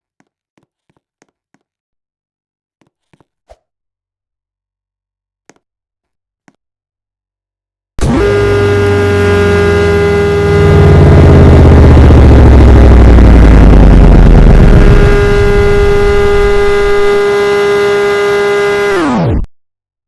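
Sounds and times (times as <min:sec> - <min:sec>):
warning siren steady tone: 0:08.0 - 0:19.5
low rumble: 0:08.2 - 0:17.8.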